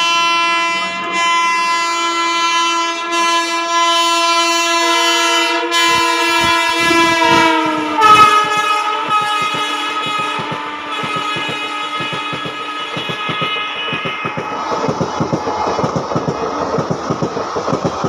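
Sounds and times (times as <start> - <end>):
locomotive horn blast: 0.0 - 14.9
train wheels clattering over rail joints: 5.9 - 18.0.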